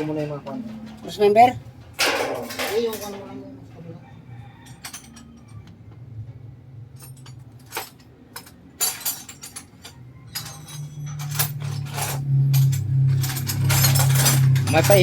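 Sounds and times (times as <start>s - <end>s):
tools clinking on metal: 1.9s - 3.4s, 4.4s - 5.7s, 7.0s - 15.0s.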